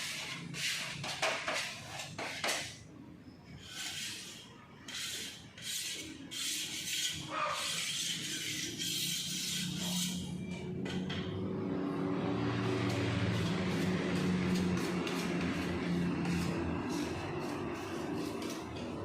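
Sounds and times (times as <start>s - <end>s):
spreader scraping body filler: 3.5s - 10.6s, 12.6s - 19.0s.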